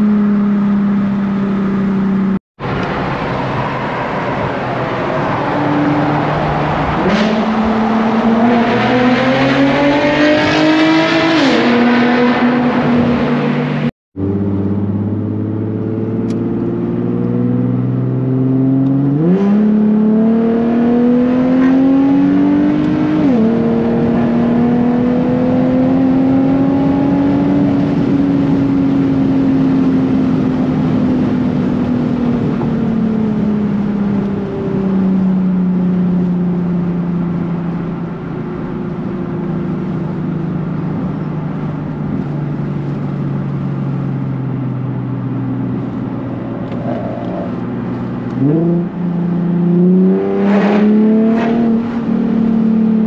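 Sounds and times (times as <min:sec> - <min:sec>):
car engine and exhaust revving: 0:00.0 - 0:53.0.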